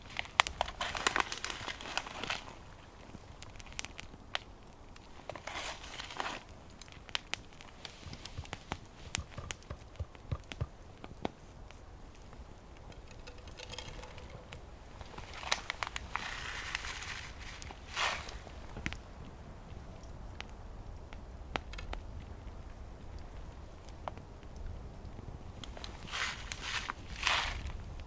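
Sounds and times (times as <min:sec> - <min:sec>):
rustling: 0:00.0 - 0:04.0, 0:05.0 - 0:19.0, 0:25.6 - 0:28.0
wood fire crackling: 0:00.0 - 0:28.0.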